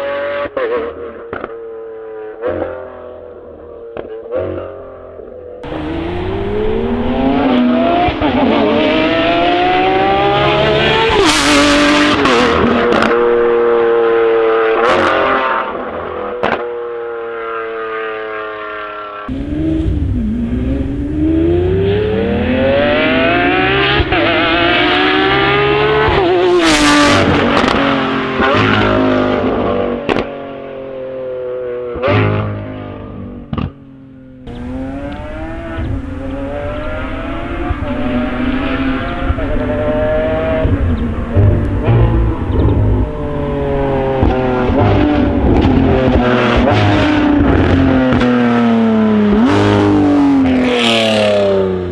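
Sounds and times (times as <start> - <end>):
sports car engine revving hard: 5.6 - 15.7, 19.3 - 30.2, 34.5 - 51.9.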